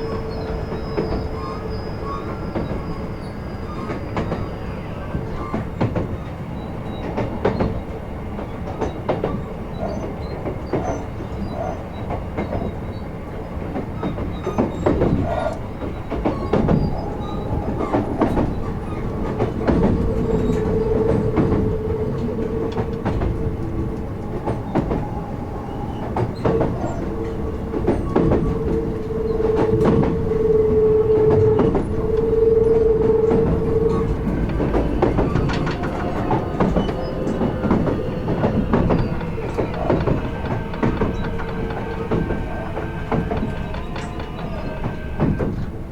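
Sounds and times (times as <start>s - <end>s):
train wheels clacking over rail joints: 0.0s - 45.9s
steady high tone: 17.4s - 43.9s.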